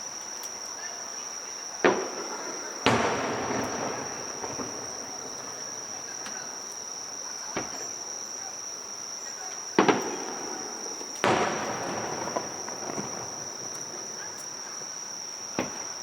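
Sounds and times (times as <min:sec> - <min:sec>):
crickets chirping: 0:00.0 - 0:16.0
fireworks shells bursting: 0:01.8 - 0:06.9, 0:09.8 - 0:16.0.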